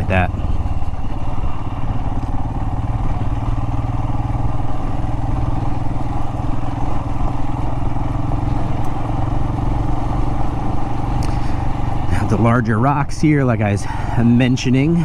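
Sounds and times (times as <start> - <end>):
motorcycle engine running: 0.0 - 15.0
tires over loose rock and gravel: 0.0 - 15.0.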